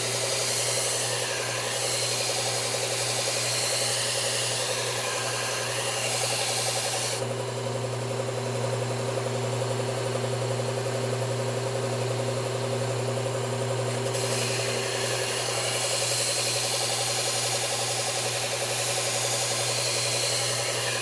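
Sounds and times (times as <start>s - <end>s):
steel grinding against belt: 0.0s - 7.2s, 14.1s - 21.0s
belt sharpener motor humming: 0.0s - 9.4s, 13.8s - 21.0s.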